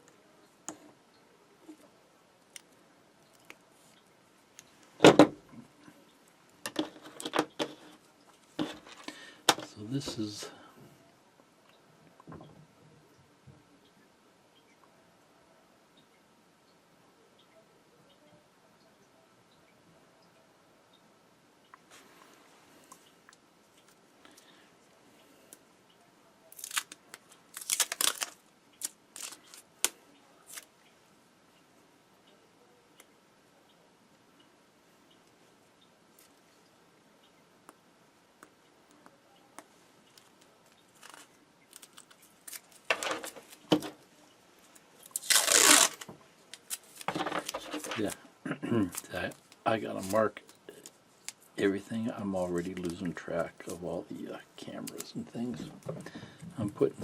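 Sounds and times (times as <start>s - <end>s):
small objects clicking and crackling: 26.5s - 30.7s, 40.1s - 44.0s, 44.7s - 48.2s.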